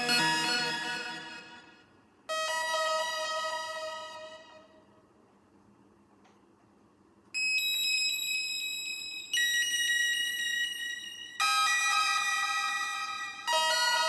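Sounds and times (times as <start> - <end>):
electronic alert tone chord: 0.0 - 4.8, 9.3 - 14.0.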